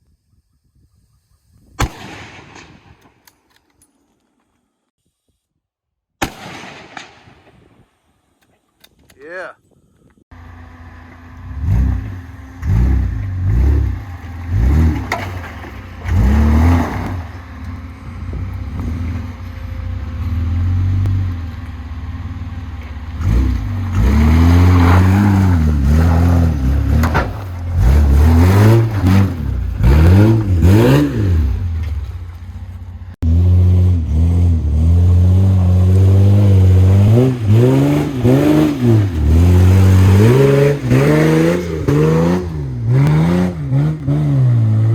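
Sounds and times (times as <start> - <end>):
truck engine revving: 10.3 - 44.9.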